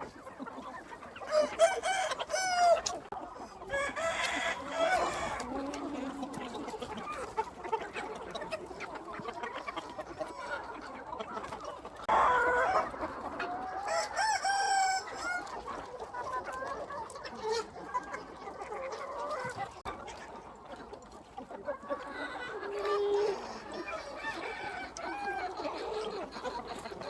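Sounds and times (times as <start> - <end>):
chickens clucking: 0.0 - 27.0
rooster crowing: 1.3 - 2.8, 3.8 - 5.3.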